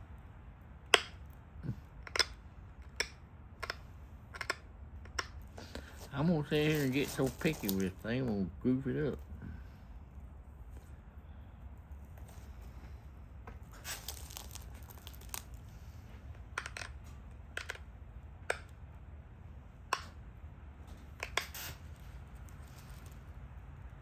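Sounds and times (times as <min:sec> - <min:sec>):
stone flakes snapping off: 0:13.8 - 0:15.6.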